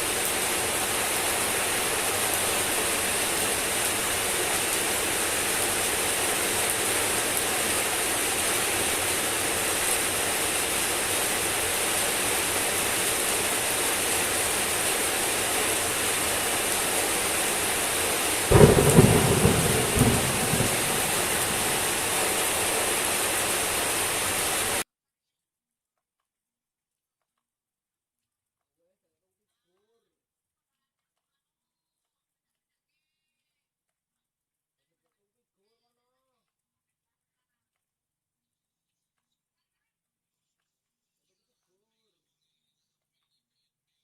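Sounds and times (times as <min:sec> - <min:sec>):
steady rainfall: 0:00.0 - 0:24.8
thunderclap rumbling: 0:18.4 - 0:24.8.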